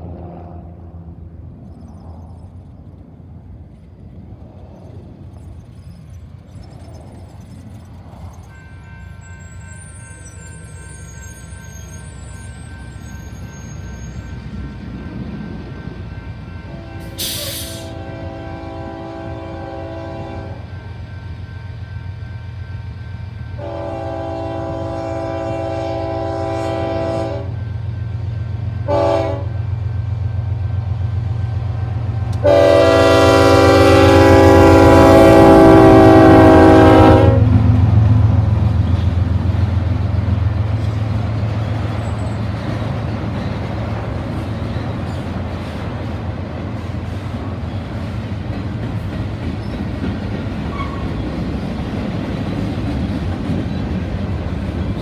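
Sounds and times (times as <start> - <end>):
freight cars rumbling past: 0.0 - 55.0
locomotive air horn blasts: 16.7 - 20.6, 23.6 - 27.6, 28.8 - 29.6, 32.4 - 37.6.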